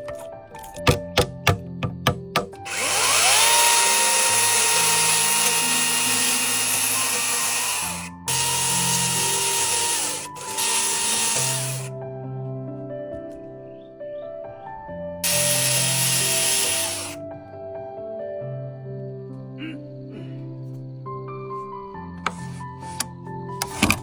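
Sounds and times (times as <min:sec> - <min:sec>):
background music: 0:00.0 - 0:24.0
power tool whining: 0:00.8 - 0:11.9, 0:15.2 - 0:17.2.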